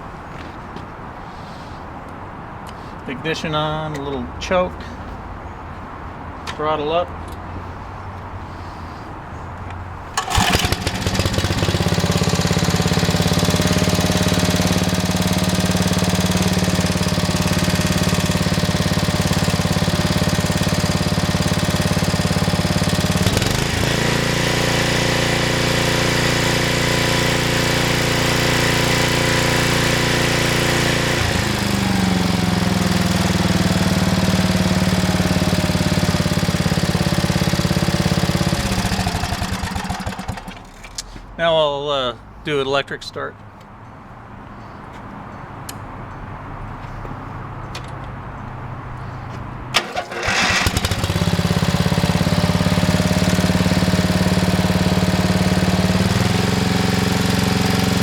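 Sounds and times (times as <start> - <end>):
tiller engine running: 10.1 - 41.0, 49.7 - 58.0.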